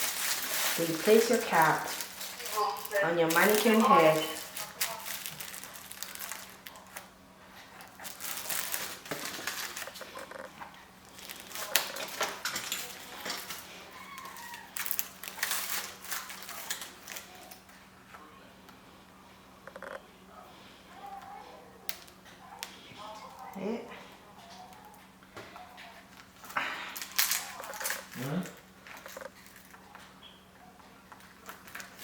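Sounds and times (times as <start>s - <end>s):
fabric rustling and crinkling: 0.0s - 10.4s, 11.0s - 17.6s.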